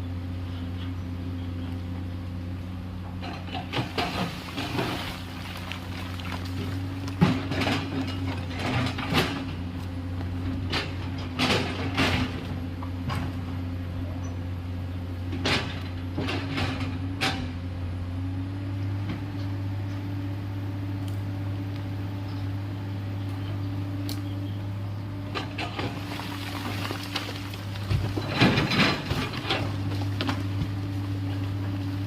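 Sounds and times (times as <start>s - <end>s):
excavator diesel engine running: 0.0s - 32.0s
machine knocks and clanks: 27.0s - 30.8s.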